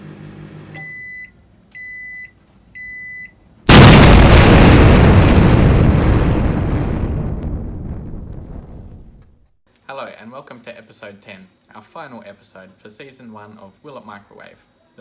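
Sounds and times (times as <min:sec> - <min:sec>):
loud explosion-like boom: 0:03.7 - 0:09.5.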